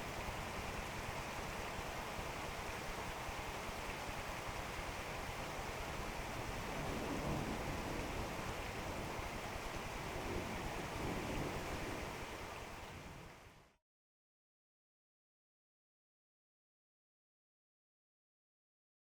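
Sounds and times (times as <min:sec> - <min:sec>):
steady rain hiss: 0:00.0 - 0:13.8.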